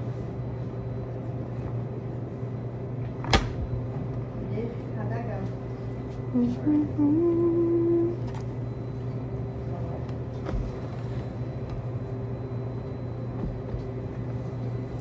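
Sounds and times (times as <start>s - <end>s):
washing machines and dryers humming: 0.0s - 15.0s.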